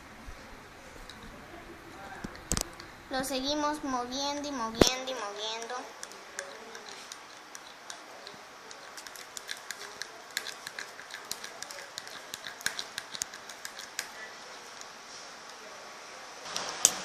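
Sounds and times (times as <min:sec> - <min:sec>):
slime being stirred sticky clicks: 0:04.8 - 0:14.2.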